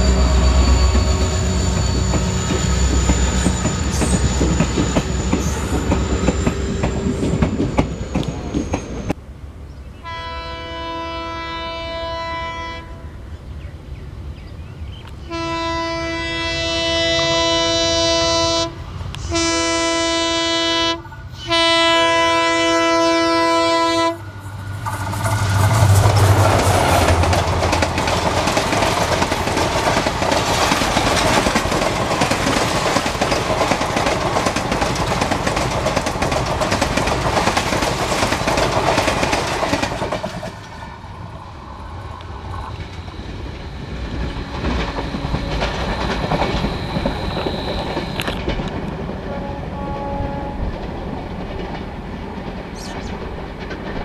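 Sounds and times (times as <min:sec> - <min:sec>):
locomotive multi-tone horn: 0:00.0 - 0:06.0, 0:10.0 - 0:13.2, 0:15.3 - 0:24.4, 0:49.2 - 0:50.8
train coaches rolling past: 0:00.0 - 0:54.0
wheels clattering over rail joints: 0:24.7 - 0:41.0, 0:42.4 - 0:49.2, 0:50.6 - 0:54.0.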